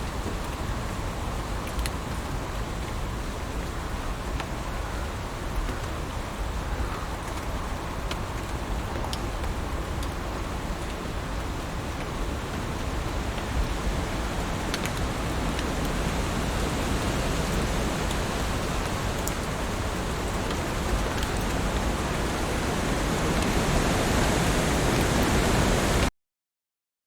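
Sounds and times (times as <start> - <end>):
heavy rain: 0.0 - 26.1
raindrop taps: 14.1 - 24.0.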